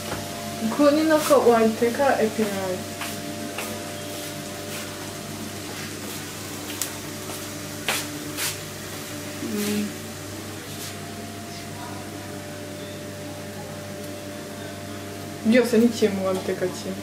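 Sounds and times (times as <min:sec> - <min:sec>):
greens sizzling in a wok: 0:00.0 - 0:17.0.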